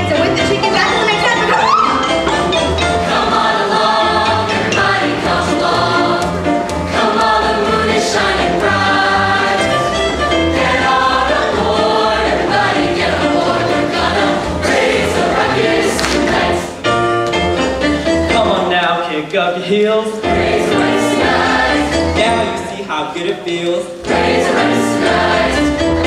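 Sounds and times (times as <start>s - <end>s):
instrumental backing music: 0.0s - 26.0s
choir singing: 1.6s - 16.9s, 20.2s - 22.6s, 24.0s - 26.0s.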